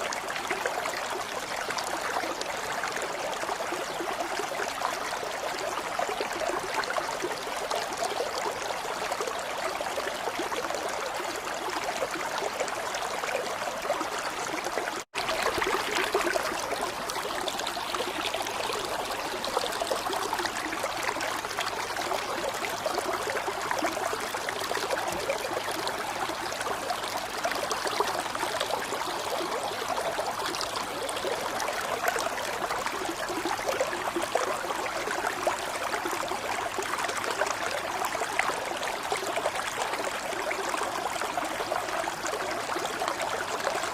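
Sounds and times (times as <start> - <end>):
running water trickling: 11.4 - 38.4.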